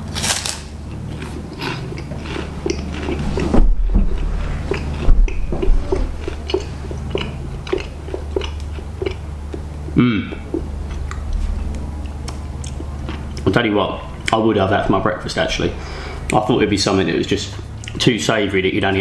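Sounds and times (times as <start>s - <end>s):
steady low hum: 0.0s - 19.0s
person chewing crunchy cracker: 0.1s - 3.5s, 4.2s - 13.6s.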